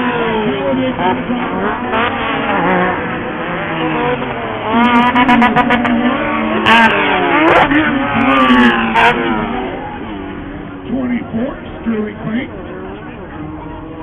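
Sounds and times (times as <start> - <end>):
racing buggy engines revving: 0.0 - 14.0.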